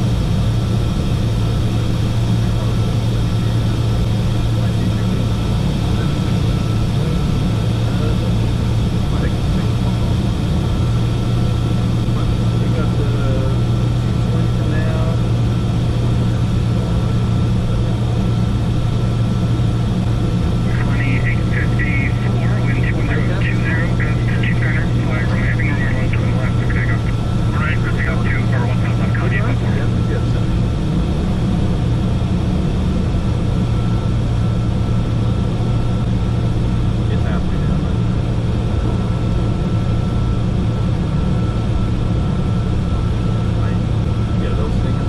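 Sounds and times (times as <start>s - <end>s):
jet engine and airflow drone: 0.0s - 45.0s.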